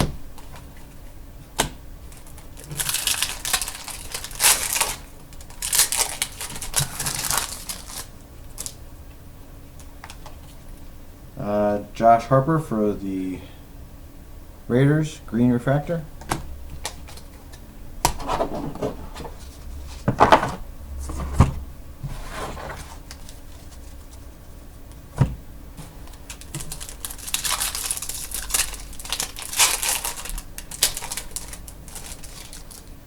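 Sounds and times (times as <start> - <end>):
wrappers crinkling and tearing: 2.1 - 8.8, 25.8 - 33.0.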